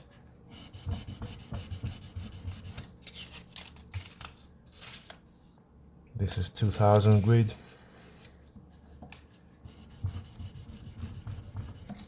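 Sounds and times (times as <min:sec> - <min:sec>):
sandpaper rubbing on metal: 0:09.8 - 0:12.0.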